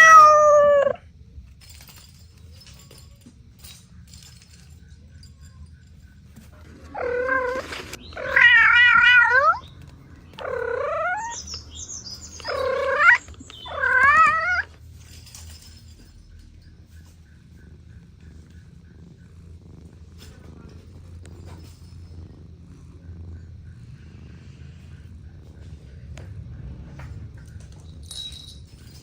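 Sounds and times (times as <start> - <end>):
cat meowing: 0.0 - 1.0, 6.9 - 9.7, 10.4 - 11.5, 12.4 - 14.7.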